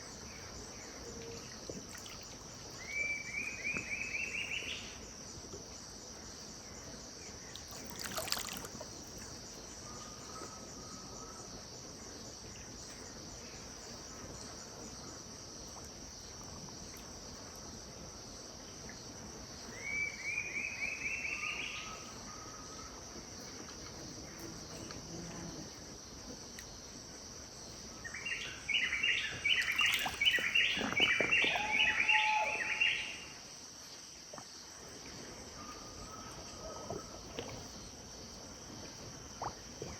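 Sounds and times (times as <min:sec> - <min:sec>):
high-pitched insect chorus drone: 0:27.6 - 0:33.6
birds calling: 0:28.3 - 0:33.1.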